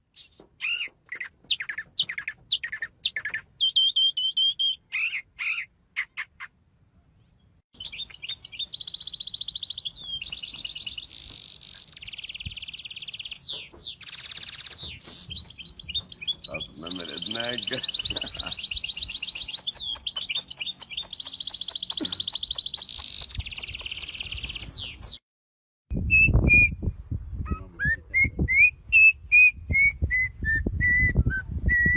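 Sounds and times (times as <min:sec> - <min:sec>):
bird chirping and trilling: 0:00.0 - 0:06.6, 0:07.3 - 0:25.2.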